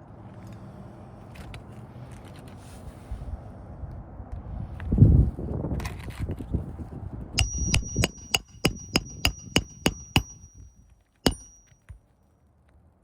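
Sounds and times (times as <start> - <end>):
hammer striking nail: 7.4 - 10.7, 11.3 - 11.7.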